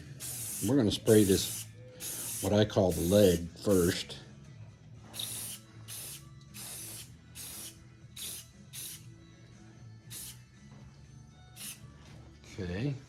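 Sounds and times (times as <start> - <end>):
spray paint hissing: 0.0 - 4.0, 5.1 - 9.1, 10.1 - 10.4, 11.6 - 11.8.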